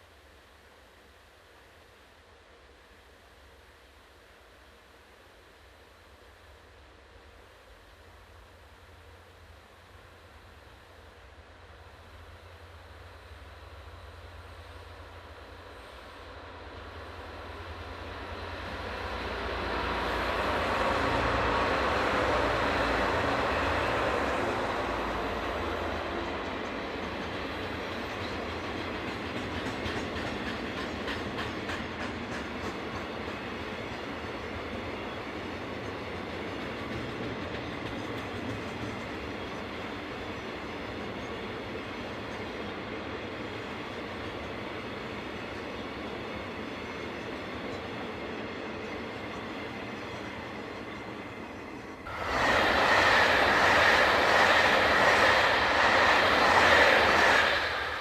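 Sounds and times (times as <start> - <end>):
train passing: 0.0 - 58.0
wheels clicking over rail joints: 26.4 - 34.1.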